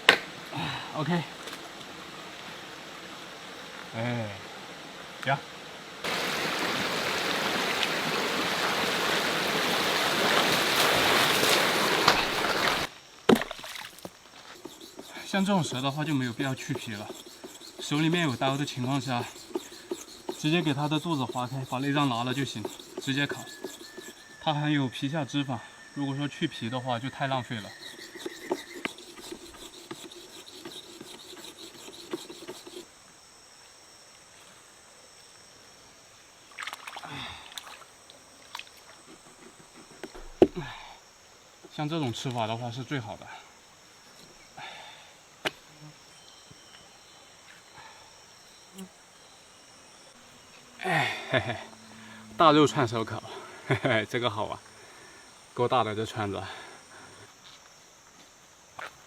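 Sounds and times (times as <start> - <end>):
running water: 4.8 - 24.2
high-pitched insect drone: 6.0 - 59.0
rasping scraping strokes: 14.4 - 25.5, 26.5 - 32.9.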